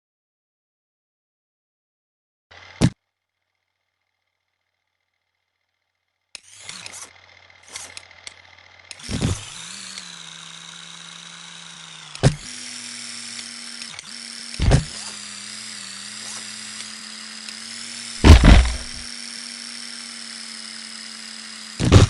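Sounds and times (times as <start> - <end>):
electric motor whining: 6.4 - 22.0
loud clatter: 18.2 - 19.0
sharp knocks: 18.2 - 19.0.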